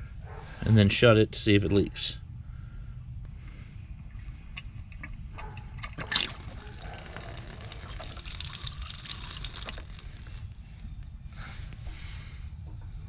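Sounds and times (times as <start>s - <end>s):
water rushing from a faucet: 6.2s - 10.5s.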